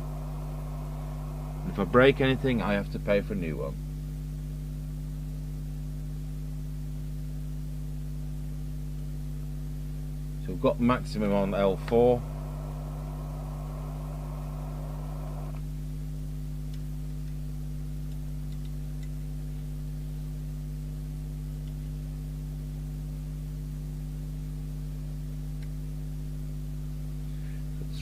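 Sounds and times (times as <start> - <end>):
hiss: 0.0 - 2.7, 12.0 - 15.6
electrical hum: 0.0 - 3.8, 10.2 - 20.4.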